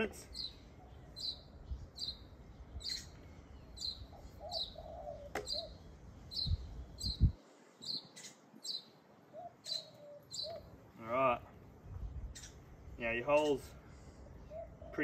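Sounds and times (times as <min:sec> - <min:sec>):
small bird chirping: 0:00.3 - 0:10.7, 0:12.2 - 0:12.7.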